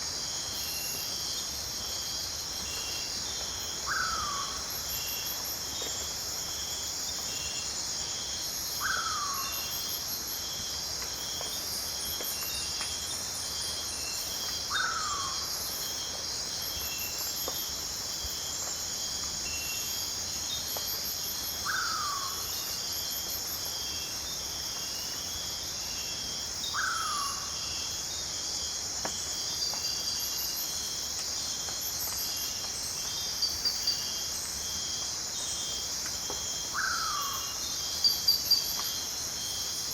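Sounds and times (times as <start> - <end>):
insects buzzing and chirping: 0.0 - 39.9.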